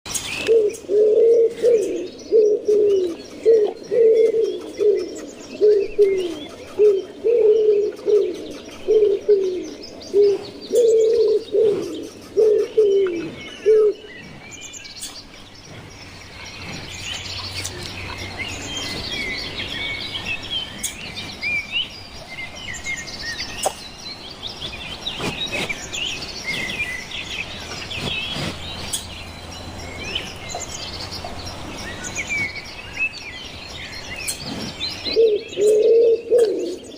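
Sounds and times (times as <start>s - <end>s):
small birds chirping: 0.1s - 36.9s
pigeon cooing: 0.4s - 14.1s, 35.1s - 36.8s.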